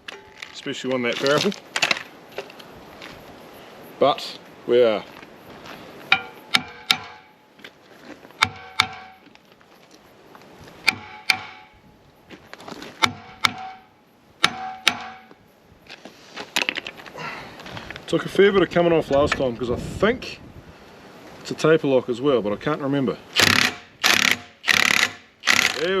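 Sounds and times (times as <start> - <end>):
metal-on-metal strikes: 6.1 - 7.4, 8.4 - 9.3, 10.8 - 11.8, 13.0 - 15.4.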